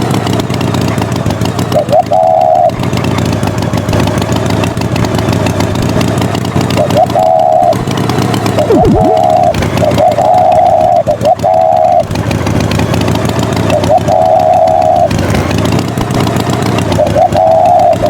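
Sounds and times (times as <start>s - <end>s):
tractor engine running: 0.0s - 18.0s
falling whistle-like slide: 8.6s - 9.6s
short high beeps: 8.7s - 9.5s.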